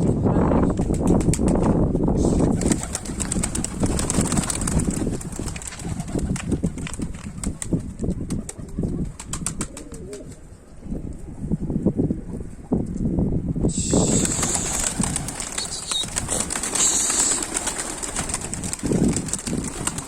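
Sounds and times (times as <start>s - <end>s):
pigeons cooing: 8.3s - 10.8s, 13.8s - 20.0s.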